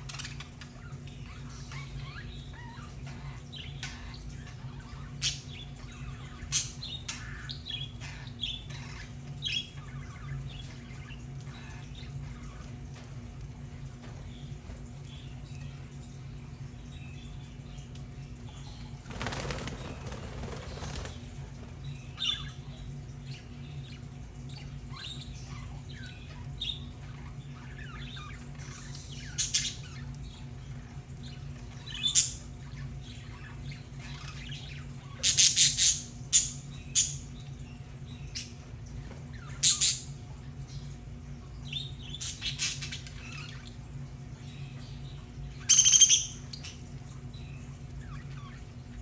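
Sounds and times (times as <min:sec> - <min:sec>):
steady low hum: 0:00.0 - 0:49.0
budgerigars chirping and chattering: 0:16.7 - 0:43.8, 0:44.4 - 0:49.0
wings fluttering: 0:18.8 - 0:21.9.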